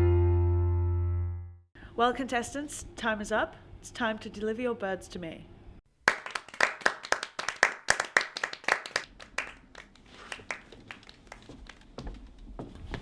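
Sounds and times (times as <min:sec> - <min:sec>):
people clapping: 0:06.0 - 0:12.3.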